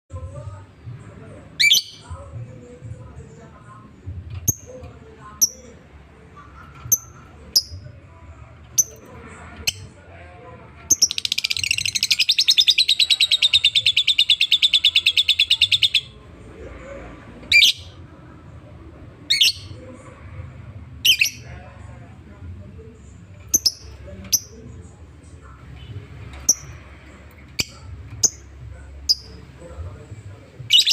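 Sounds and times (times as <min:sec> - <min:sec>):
bird chirping and trilling: 0:01.6 - 0:02.2, 0:10.9 - 0:16.2, 0:17.5 - 0:18.0, 0:19.3 - 0:19.8, 0:21.0 - 0:21.5, 0:23.5 - 0:24.6, 0:27.5 - 0:29.4, 0:30.7 - 0:30.9.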